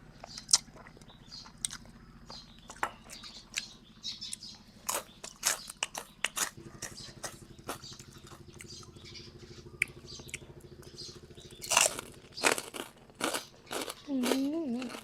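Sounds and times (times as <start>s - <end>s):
low steady hum: 0.0s - 15.0s
soft chewing and mouth clicks: 0.2s - 8.9s.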